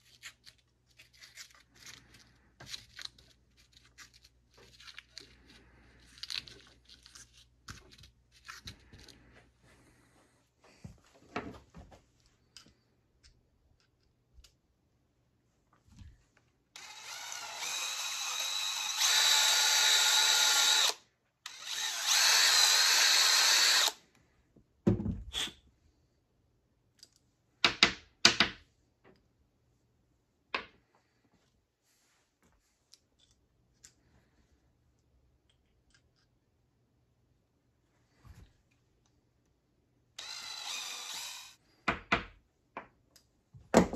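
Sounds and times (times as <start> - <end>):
power tool electric motor running: 16.8 - 24.0, 40.2 - 41.6.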